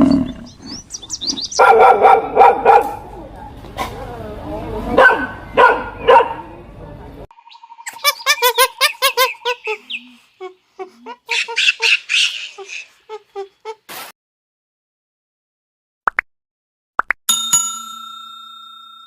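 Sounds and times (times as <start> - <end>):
dog barking: 1.6 - 3.6, 5.0 - 6.5.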